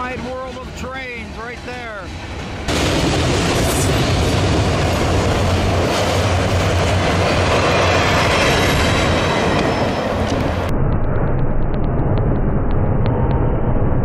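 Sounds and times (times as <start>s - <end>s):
train cars rolling on rails: 0.0s - 10.7s.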